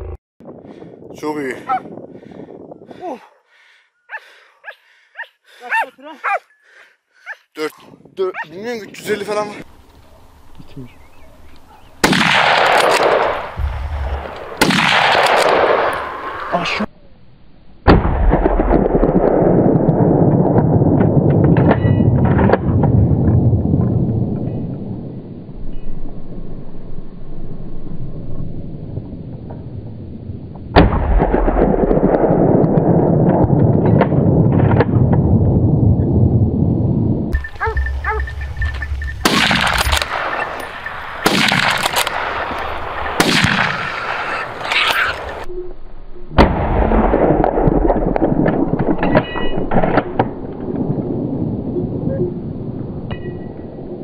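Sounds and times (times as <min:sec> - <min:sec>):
rifle shot: 0:12.0 - 0:16.4, 0:17.9 - 0:19.6, 0:30.8 - 0:35.1, 0:39.2 - 0:44.7, 0:46.4 - 0:49.2
low rolling rumble: 0:18.0 - 0:44.6, 0:46.3 - 0:54.0
scattered clicks: 0:37.3 - 0:42.8.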